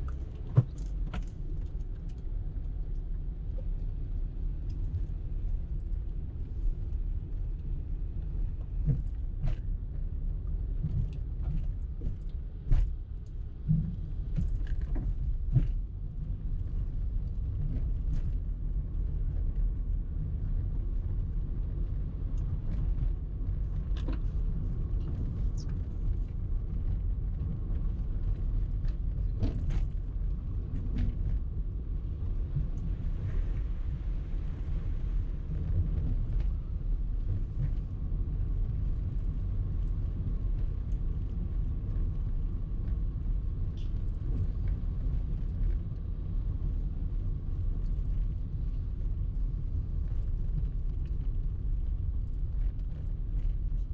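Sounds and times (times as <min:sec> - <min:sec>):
car road rumble: 0:00.0 - 0:53.9.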